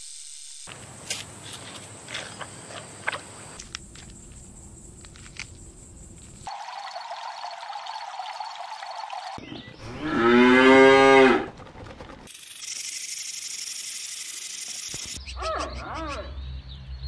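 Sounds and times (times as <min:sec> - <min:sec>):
steady high hiss: 0:00.0 - 0:01.5
water running: 0:06.5 - 0:09.4
cow mooing: 0:09.9 - 0:11.5.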